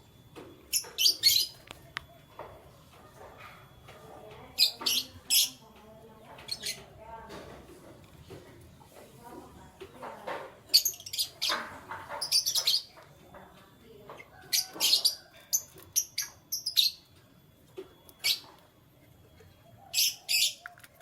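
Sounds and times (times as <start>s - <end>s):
canaries chirping: 0.5s - 21.0s.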